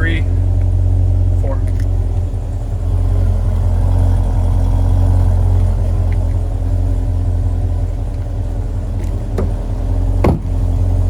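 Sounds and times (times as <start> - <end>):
car engine idling: 0.0 - 11.0
thump: 9.3 - 9.6, 10.2 - 10.6.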